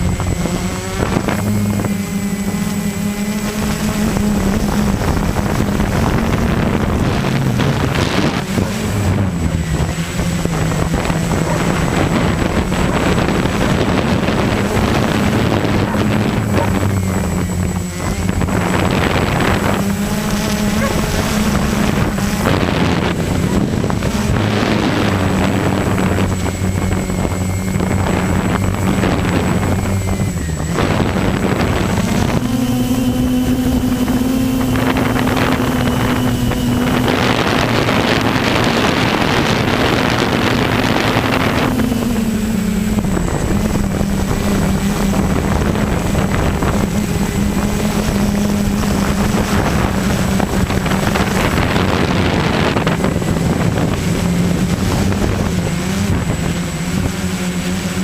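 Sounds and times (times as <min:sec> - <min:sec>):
vehicle engine revving: 0:00.0 - 0:58.0
wind gusts on microphone: 0:00.0 - 0:58.0.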